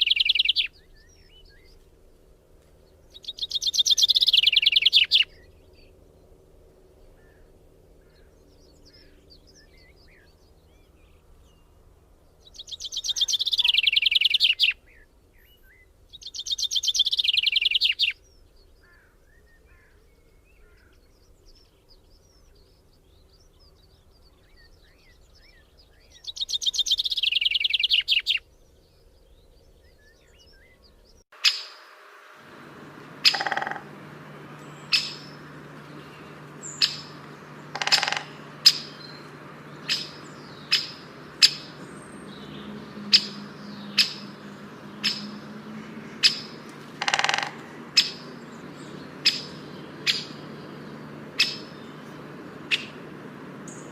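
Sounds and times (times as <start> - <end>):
songbird trilling: 0.0 - 1.7, 3.1 - 5.9, 12.4 - 15.0, 16.1 - 18.2, 31.4 - 53.9
soft bird chirps: 0.0 - 1.9, 2.8 - 6.3, 7.1 - 53.9
sharp knocks: 47.0 - 47.6.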